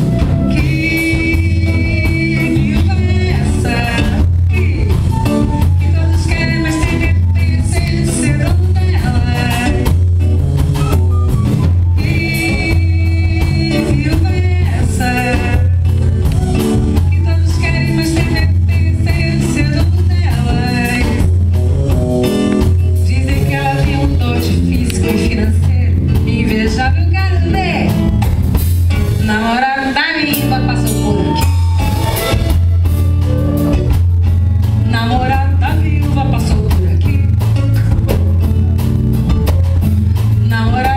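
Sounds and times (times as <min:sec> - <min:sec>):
drum kit: 0:00.0 - 0:40.9
live band music: 0:00.0 - 0:40.9
pulsing bass: 0:00.0 - 0:40.9.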